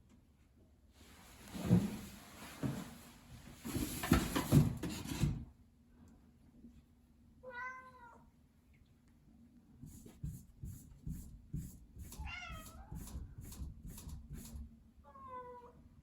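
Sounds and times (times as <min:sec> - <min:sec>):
cat meowing: 0:07.4 - 0:08.2, 0:12.2 - 0:13.0.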